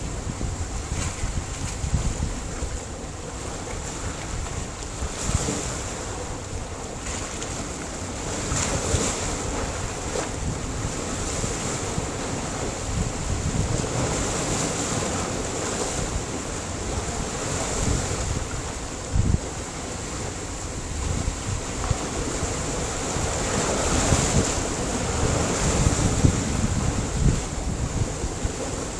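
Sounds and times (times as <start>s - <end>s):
surf breaking on rocky shore: 0.0s - 28.9s
wind buffeting microphone: 0.0s - 28.9s.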